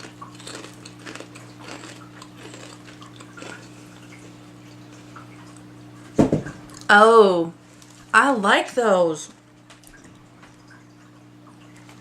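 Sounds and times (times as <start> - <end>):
potato chips crackling and crunching: 0.0 - 4.3.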